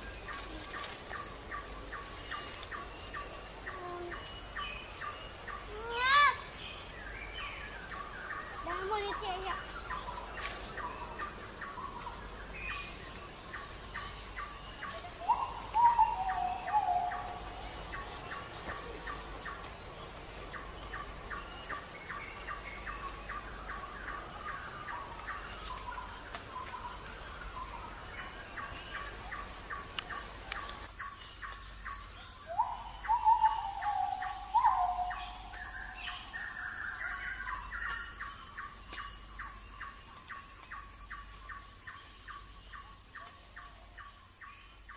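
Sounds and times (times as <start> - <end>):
rising and falling bird calls: 0.0 - 19.8, 32.4 - 38.4.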